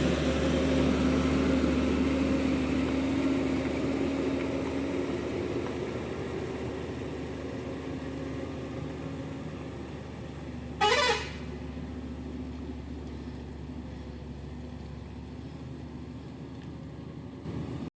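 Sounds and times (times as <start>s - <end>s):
vehicle engine running: 0.0s - 17.9s
short horn toot: 10.8s - 11.5s.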